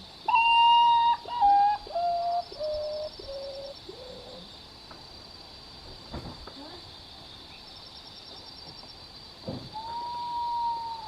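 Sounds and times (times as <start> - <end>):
bird whistling descending notes: 9.8 - 11.0.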